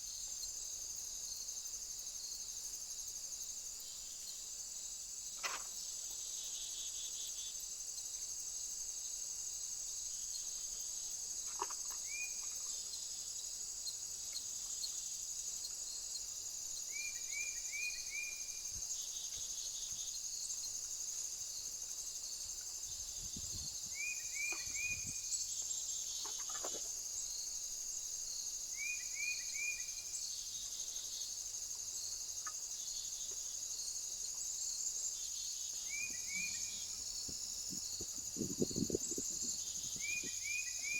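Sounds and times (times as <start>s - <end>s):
crickets chirring: 0.0s - 40.9s
bird call: 24.0s - 25.2s.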